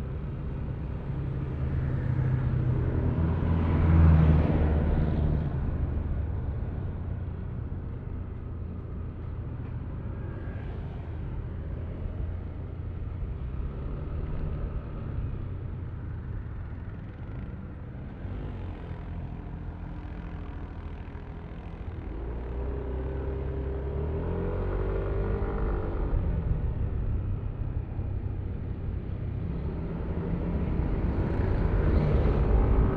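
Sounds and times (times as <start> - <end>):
road and wind noise: 0.0 - 32.9.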